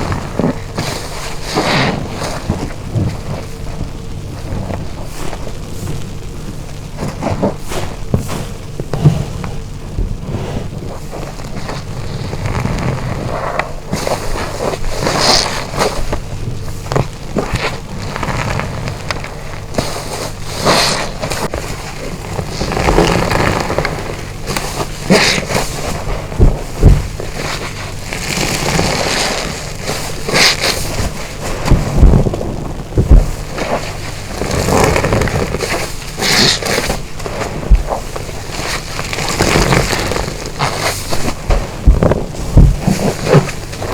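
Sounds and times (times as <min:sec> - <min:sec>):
wet sponge squelching: 0:00.0 - 0:43.9
sharp low thumps: 0:26.0 - 0:27.4, 0:31.1 - 0:35.5, 0:39.2 - 0:43.8.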